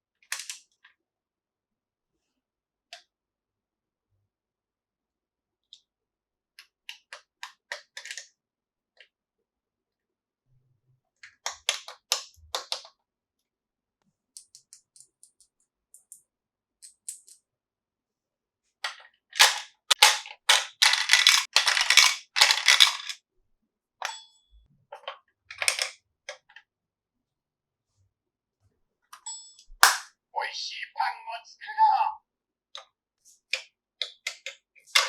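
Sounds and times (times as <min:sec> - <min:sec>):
plastic toy pieces clicking: 0:00.3 - 0:00.8, 0:06.6 - 0:08.3, 0:18.9 - 0:23.2, 0:25.5 - 0:26.6.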